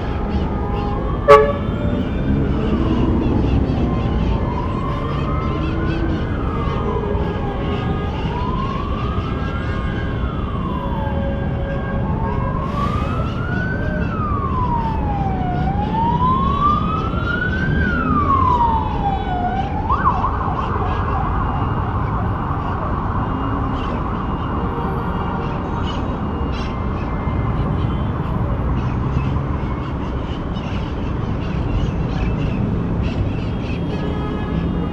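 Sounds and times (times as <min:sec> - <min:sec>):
emergency vehicle siren: 0:00.0 - 0:34.9
street traffic noise: 0:00.0 - 0:34.9.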